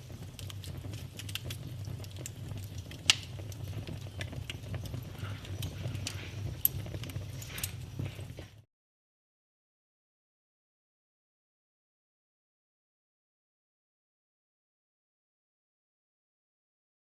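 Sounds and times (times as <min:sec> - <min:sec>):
fire pops: 0:00.0 - 0:08.7
low fire rumble: 0:00.0 - 0:08.7
wood fire crackling: 0:00.0 - 0:08.7.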